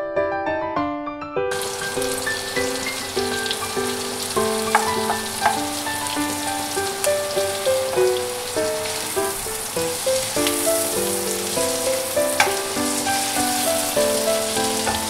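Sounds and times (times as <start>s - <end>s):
garlic and beans sizzling in oil: 1.5s - 15.0s
spatula clicking on pan: 4.4s - 6.4s, 12.3s - 13.3s.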